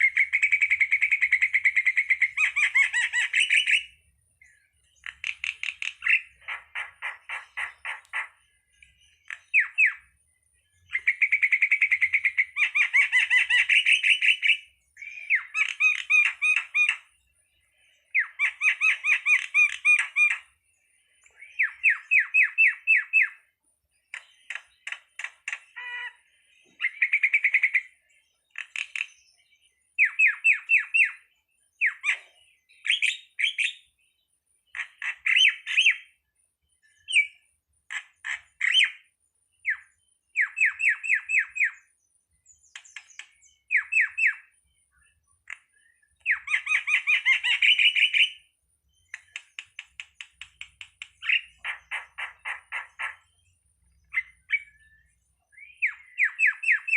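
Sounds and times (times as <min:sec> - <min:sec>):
starling chattering calls: 0:51.2 - 0:53.3.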